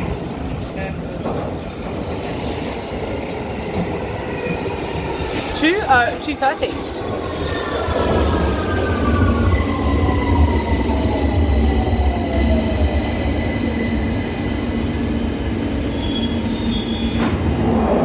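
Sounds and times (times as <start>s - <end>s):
train wheels squealing: 7.3s - 17.4s.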